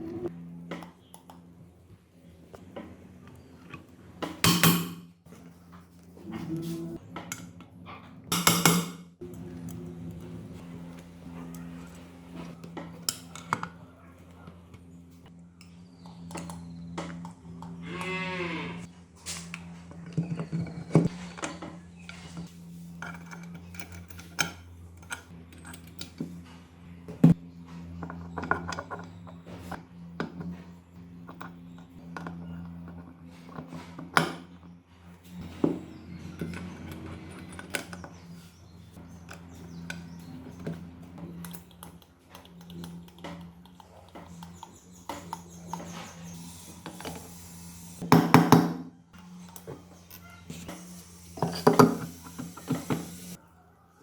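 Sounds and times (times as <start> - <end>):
metal tools clinking and knocking: 23.0 - 26.4, 49.2 - 53.4.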